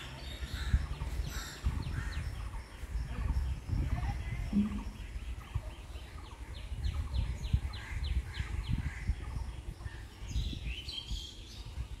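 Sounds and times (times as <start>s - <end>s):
low rumble: 4.4s - 5.6s.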